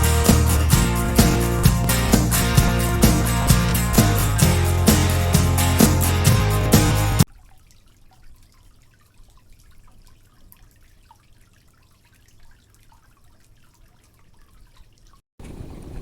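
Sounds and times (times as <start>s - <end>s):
water trickling and dripping: 7.3s - 15.2s.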